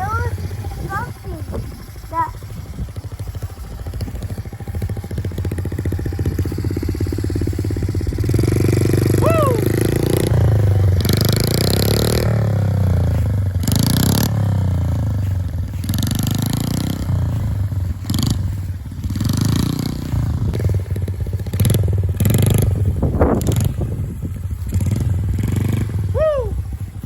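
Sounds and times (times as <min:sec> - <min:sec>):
harsh rushing noise: 0:00.0 - 0:17.3
dirt bike engine revving: 0:00.0 - 0:27.0.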